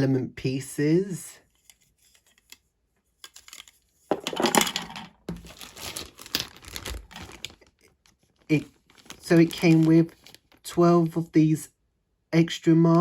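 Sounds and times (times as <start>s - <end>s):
plastic packaging crinkling: 5.3s - 11.2s.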